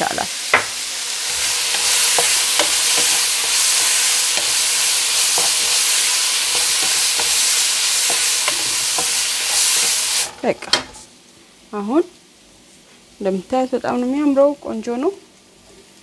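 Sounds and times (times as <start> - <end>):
food sizzling in a frying pan: 0.0 - 12.4
wooden spatula scraping pan: 1.0 - 11.0.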